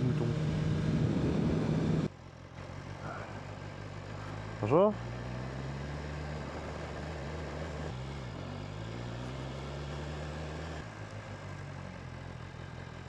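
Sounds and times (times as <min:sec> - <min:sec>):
wind noise: 0:00.0 - 0:02.1
motorcycle engine running: 0:00.0 - 0:13.0.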